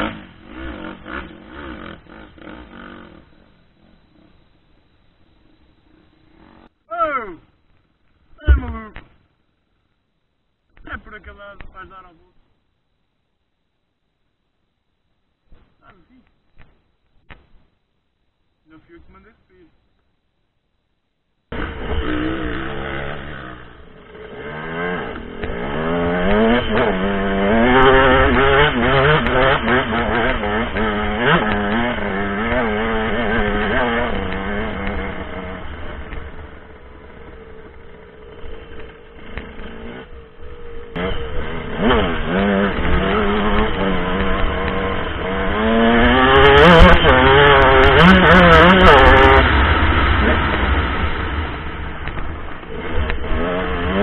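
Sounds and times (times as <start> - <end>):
dirt bike engine revving: 0.0 - 4.3, 5.9 - 6.9, 21.5 - 54.0.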